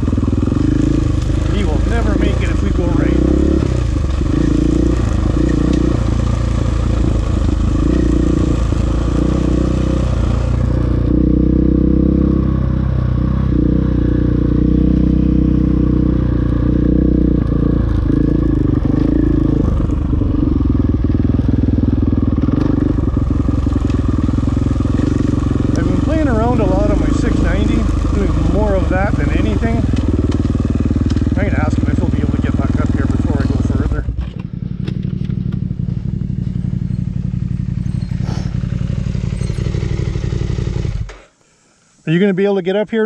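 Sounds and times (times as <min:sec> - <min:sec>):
dirt bike engine revving: 0:00.0 - 0:41.4
clatter: 0:29.1 - 0:41.3.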